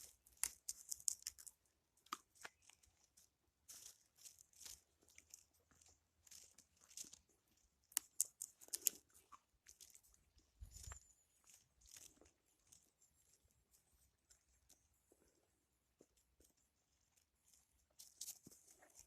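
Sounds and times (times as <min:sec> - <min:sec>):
faint crunching footsteps: 0:02.3 - 0:07.7.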